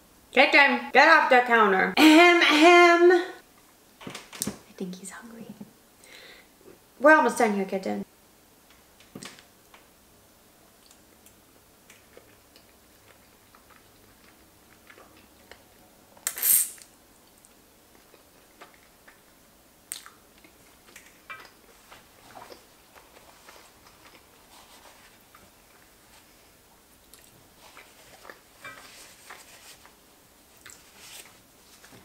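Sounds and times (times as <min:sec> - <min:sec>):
chewing soft pasta: 0:10.7 - 0:16.2, 0:16.8 - 0:32.0
loud slurp from spoon: 0:16.3 - 0:16.8.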